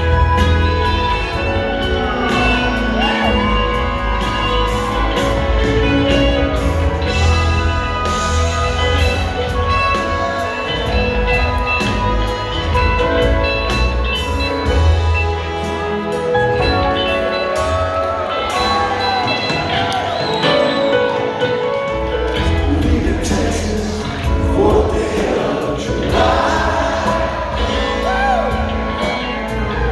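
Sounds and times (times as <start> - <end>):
drums: 0.0 - 29.9
live rock band playing: 0.0 - 29.9.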